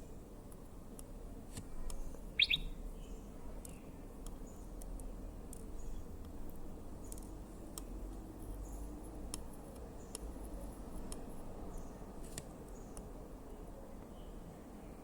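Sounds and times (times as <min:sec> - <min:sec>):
faint high chirps: 0:02.4 - 0:03.2.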